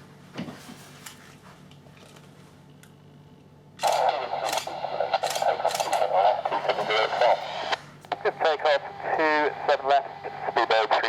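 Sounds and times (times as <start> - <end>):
crackly radio transmission: 3.8 - 11.0.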